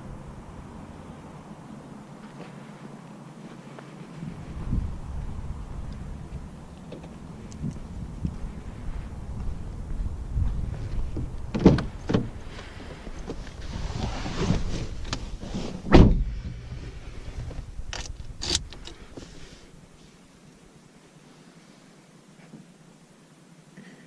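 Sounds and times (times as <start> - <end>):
low rumble: 4.2 - 12.6.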